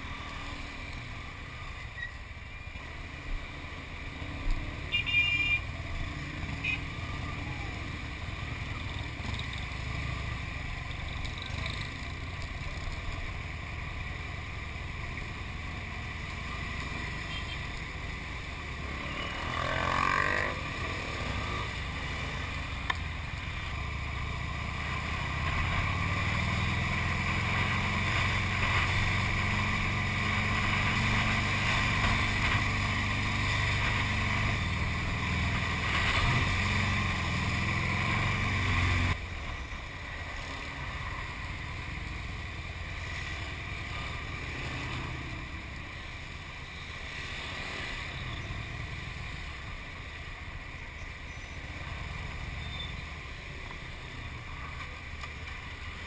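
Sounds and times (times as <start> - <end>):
traffic noise: 0.0 - 56.0.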